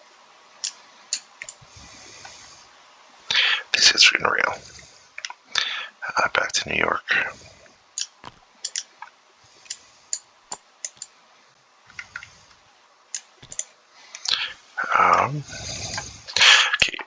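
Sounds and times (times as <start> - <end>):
sharp clicks of game pieces: 0.6 - 1.6, 8.0 - 8.9, 9.6 - 11.1, 13.2 - 13.7.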